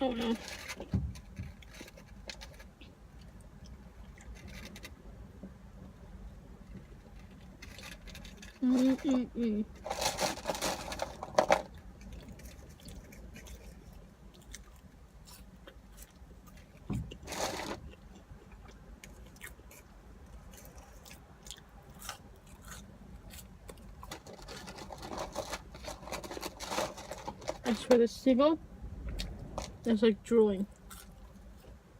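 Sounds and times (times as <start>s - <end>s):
chewing and biting food: 12.0s - 24.8s, 30.7s - 31.8s.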